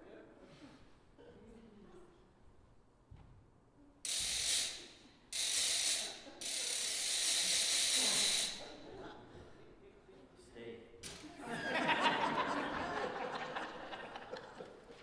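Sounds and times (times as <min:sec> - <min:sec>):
ratchet noisemaker cranked: 0:04.1 - 0:08.8.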